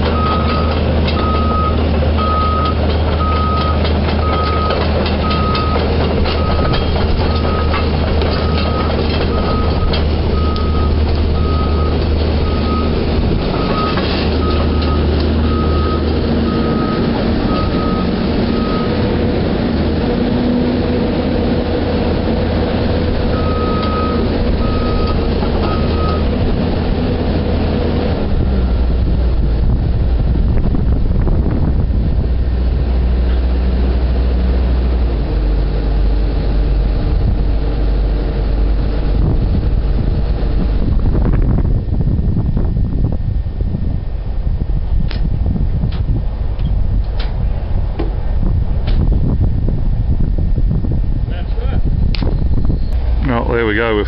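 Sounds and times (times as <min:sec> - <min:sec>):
diesel engine rumbling: 0:00.0 - 0:54.0
back-up alarm beeping: 0:00.1 - 0:07.8, 0:08.4 - 0:13.0, 0:13.6 - 0:19.0, 0:23.3 - 0:26.3.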